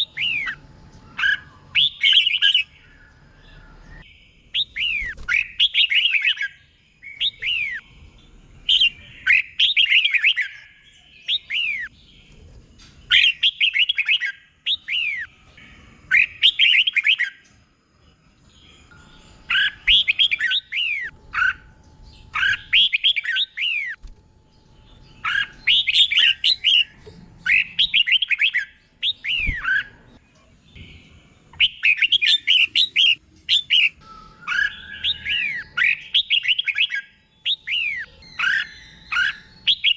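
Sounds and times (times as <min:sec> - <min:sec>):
bird singing whistled notes: 0:00.0 - 0:12.2, 0:13.0 - 0:17.5, 0:18.4 - 0:24.0, 0:24.8 - 0:30.1, 0:30.8 - 0:39.9.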